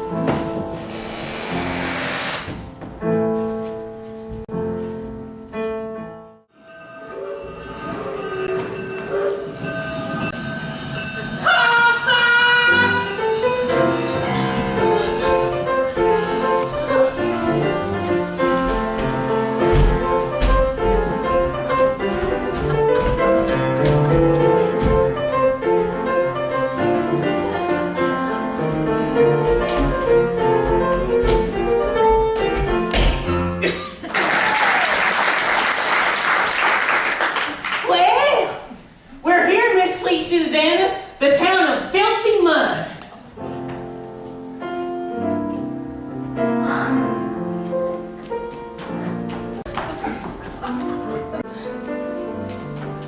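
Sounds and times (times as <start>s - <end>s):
piano music: 0.0s - 33.7s, 43.3s - 53.0s
train whistle chord: 11.5s - 19.7s.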